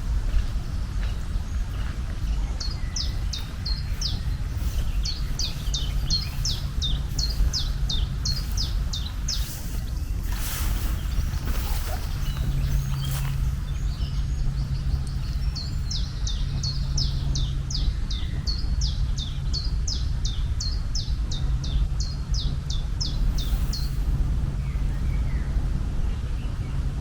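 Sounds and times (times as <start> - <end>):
low hum and rumble: 0.0 - 27.0
bird singing high sliding notes: 2.6 - 17.4, 23.0 - 25.4.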